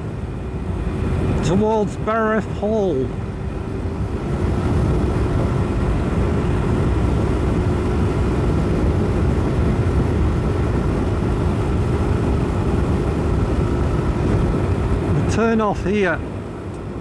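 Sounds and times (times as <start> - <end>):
motorcycle engine running: 3.6 - 15.3.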